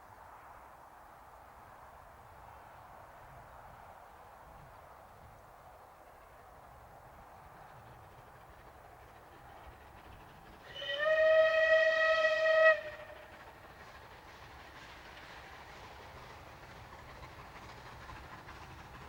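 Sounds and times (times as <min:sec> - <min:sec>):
faint train running: 0:00.0 - 0:19.0
steam whistle blast: 0:10.7 - 0:13.3.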